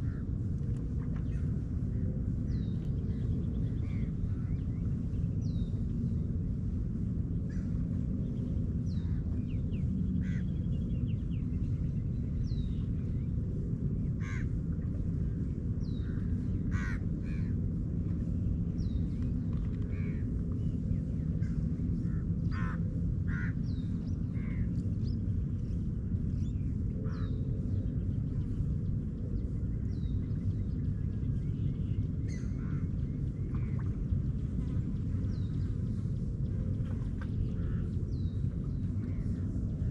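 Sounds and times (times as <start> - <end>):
steady low rumble: 0.0 - 39.9
crows cawing: 10.2 - 10.4, 14.2 - 14.5, 16.7 - 17.5, 22.5 - 23.6.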